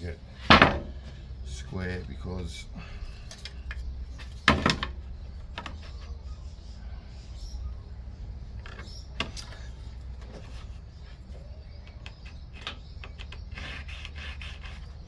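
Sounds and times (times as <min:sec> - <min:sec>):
steady low hum: 0:00.0 - 0:15.0
tools and wood clicking: 0:03.2 - 0:06.2, 0:08.6 - 0:15.0.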